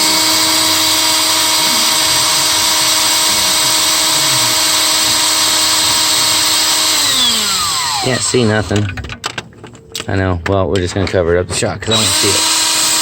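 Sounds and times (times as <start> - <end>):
power drill drilling into metal: 0.0 - 8.8, 11.9 - 13.0.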